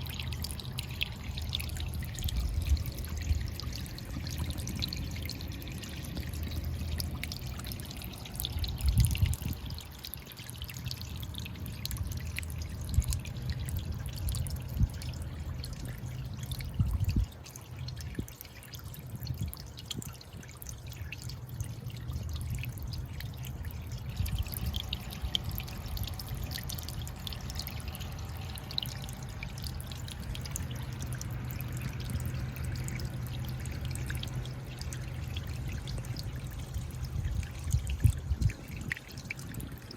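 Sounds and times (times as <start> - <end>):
low rumble: 0.0 - 10.0, 21.5 - 39.9
small splashes: 0.0 - 39.9
trickling dripping water: 0.0 - 39.9.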